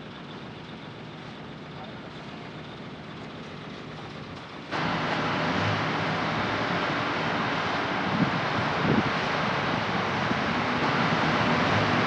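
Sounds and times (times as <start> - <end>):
heavy diesel machinery running: 0.0 - 12.0.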